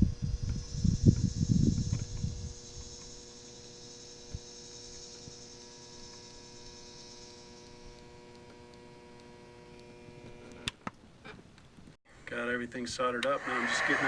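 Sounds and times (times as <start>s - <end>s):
high hiss: 0.2s - 8.0s.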